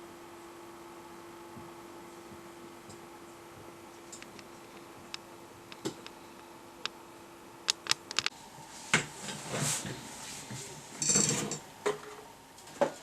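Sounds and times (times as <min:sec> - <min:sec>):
faint steady hum: 0:00.0 - 0:13.0
sharp clicks: 0:07.7 - 0:08.3.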